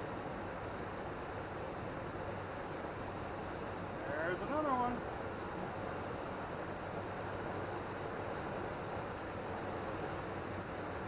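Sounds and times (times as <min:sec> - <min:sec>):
fast-flowing river rushing: 0:00.0 - 0:11.0.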